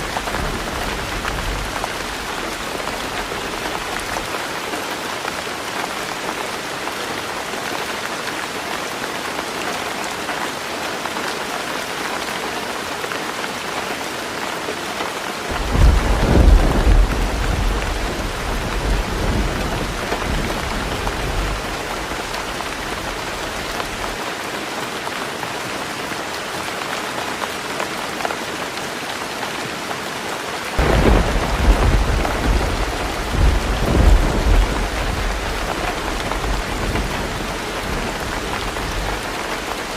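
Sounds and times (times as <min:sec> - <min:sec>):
thunder rumbling: 0:00.0 - 0:04.3, 0:15.5 - 0:24.2, 0:30.8 - 0:39.9
heavy rain on a tin roof: 0:00.0 - 0:39.9.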